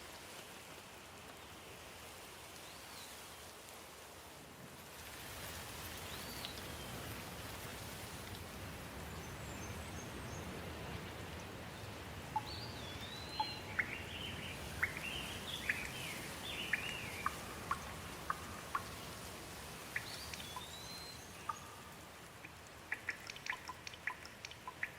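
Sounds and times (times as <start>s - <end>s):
steady rain falling: 0.0s - 24.9s
bird chirping and whistling: 20.0s - 21.7s.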